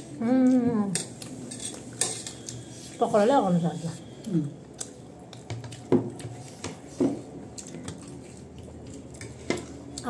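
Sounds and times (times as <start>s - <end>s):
wet chewing and squishing: 4.6s - 10.0s.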